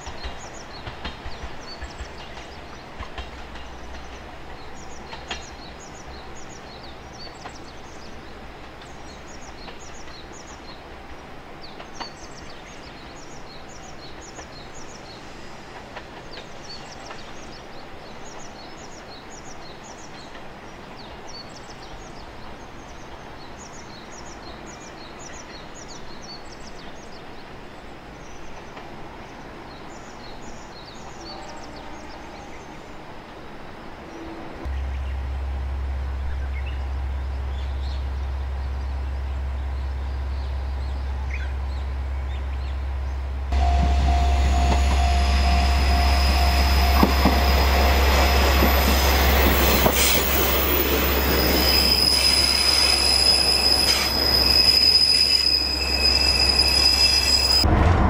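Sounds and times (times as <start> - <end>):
diesel railcar pulling away: 34.7 - 58.0
bird chirping: 36.2 - 57.6.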